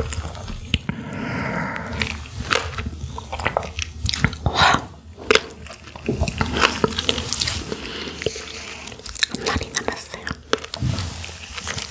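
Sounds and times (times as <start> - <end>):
wet chewing and smacking: 0.0 - 11.9.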